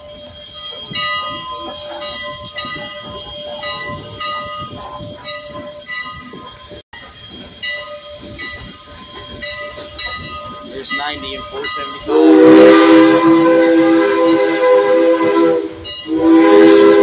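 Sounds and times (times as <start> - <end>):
high ringing tones: 0.0 - 13.0
steam hiss: 0.0 - 17.0
steam locomotive exhaust chuffs: 0.0 - 17.0.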